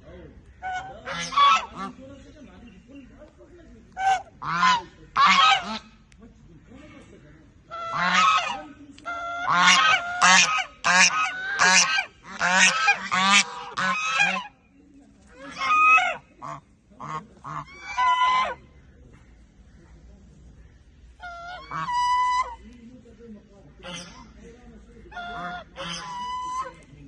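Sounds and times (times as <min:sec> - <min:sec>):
goose honking: 0:00.5 - 0:02.0, 0:03.9 - 0:06.0, 0:07.7 - 0:14.6, 0:15.3 - 0:18.6, 0:21.1 - 0:22.7, 0:23.8 - 0:24.4, 0:25.1 - 0:26.9.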